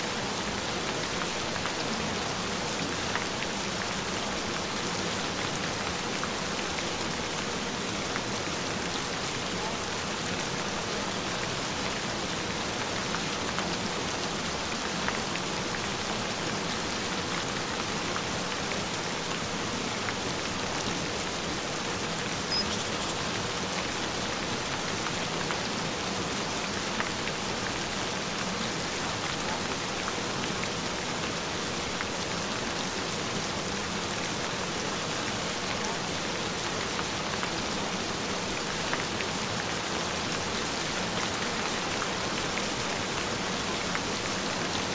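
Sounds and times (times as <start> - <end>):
gentle rain falling: 0.0 - 44.9
faint steady tone: 22.4 - 23.3.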